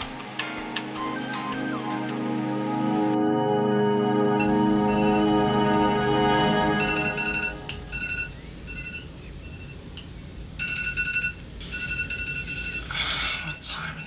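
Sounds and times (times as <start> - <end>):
electronic alarm beeping: 4.4 - 5.6, 6.7 - 9.8, 10.6 - 13.6.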